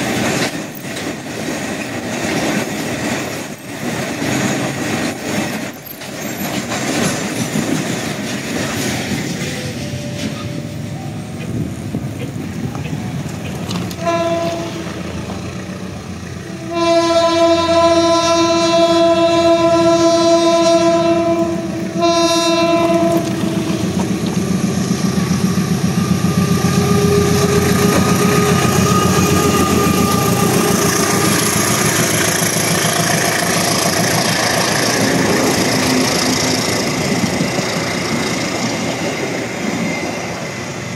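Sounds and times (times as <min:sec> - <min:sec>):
train wheels clattering on rails: 0:00.0 - 0:16.5, 0:21.5 - 0:40.9
train horn: 0:13.9 - 0:24.2, 0:26.0 - 0:36.8.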